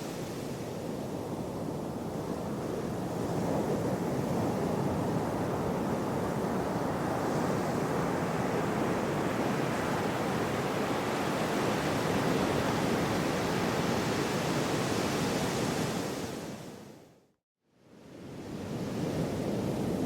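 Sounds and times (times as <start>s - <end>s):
sea waves washing on shore: 0.0s - 16.8s.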